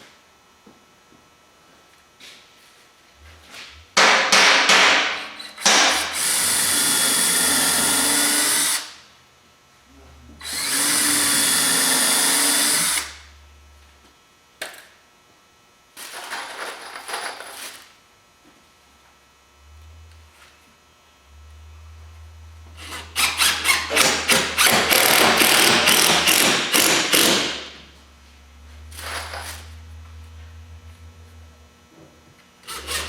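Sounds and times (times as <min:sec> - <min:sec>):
power drill whining: 0:06.2 - 0:08.9, 0:10.4 - 0:13.1, 0:22.8 - 0:27.6.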